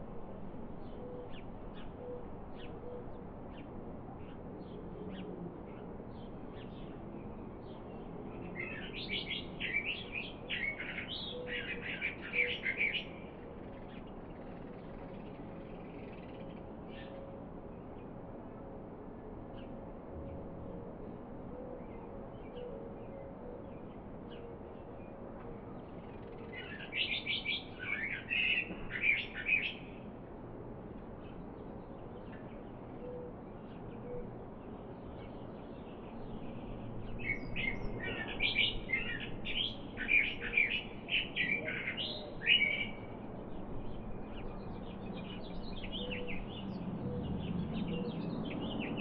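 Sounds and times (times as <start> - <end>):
songbird chirping and trilling: 0.0 - 18.2, 19.5 - 30.2, 30.9 - 49.0
low outdoor background noise: 0.0 - 49.0
songbird warbling: 37.2 - 43.1
faint bird chirps: 44.8 - 49.0.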